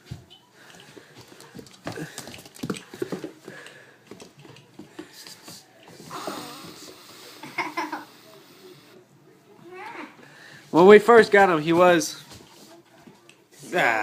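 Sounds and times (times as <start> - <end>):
puppy scuffling: 0.0 - 6.1.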